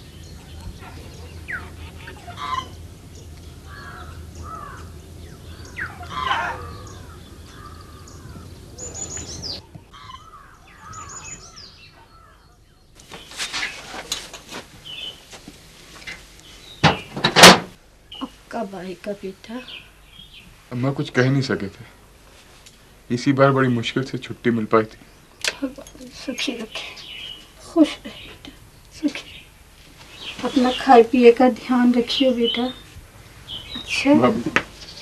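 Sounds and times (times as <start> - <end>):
birds chirping and calling: 0.0 - 13.8, 19.5 - 20.5, 24.8 - 35.0
low steady hum: 0.0 - 35.0.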